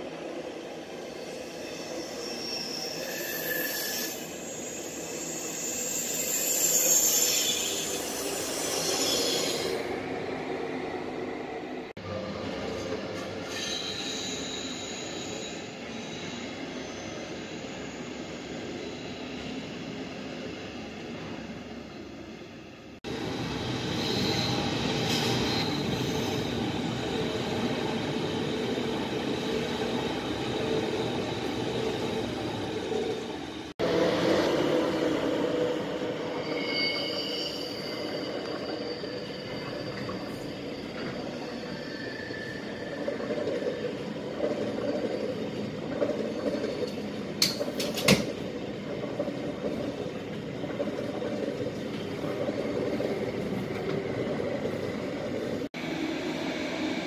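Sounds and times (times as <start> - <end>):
trains rumbling along tracks: 0.0 - 57.0
train wheels squealing: 0.8 - 9.9, 13.2 - 20.5, 23.7 - 33.6, 34.9 - 47.7.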